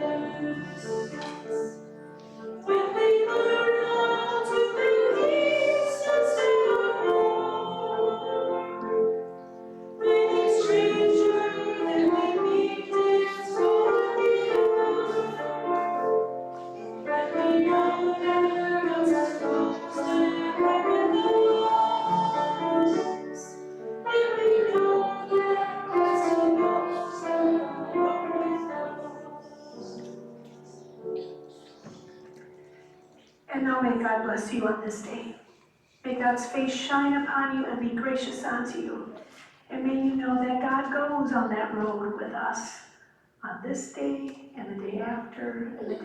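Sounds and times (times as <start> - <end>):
voices singing a hymn: 0.0 - 32.5
instrumental accompaniment: 0.0 - 33.4.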